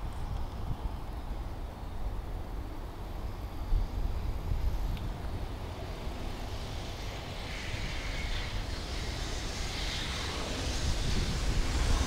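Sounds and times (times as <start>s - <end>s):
freight train approaching: 0.0s - 12.0s
hiss: 3.2s - 12.0s.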